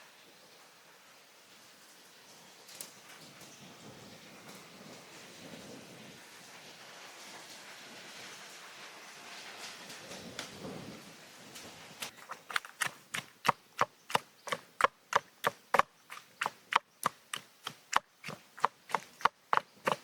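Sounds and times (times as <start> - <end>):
food rustling: 12.0 - 20.0
knife chopping on cutting board: 12.2 - 20.0.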